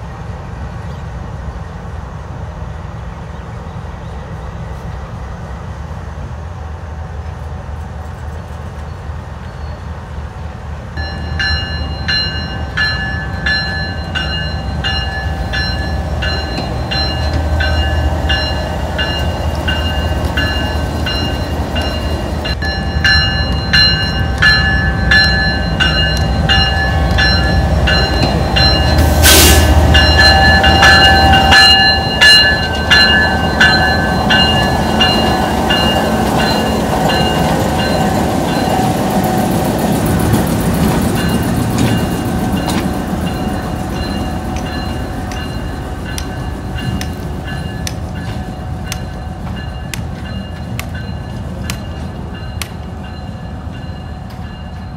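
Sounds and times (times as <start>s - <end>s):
locomotive diesel engine rumbling: 0.0s - 54.9s
wheels clicking on rails: 29.9s - 54.9s.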